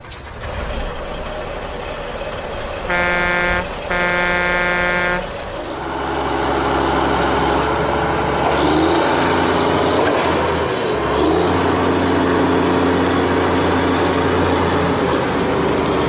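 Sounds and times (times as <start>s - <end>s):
engine running steadily: 0.0s - 16.0s
truck horn honking: 2.8s - 5.9s.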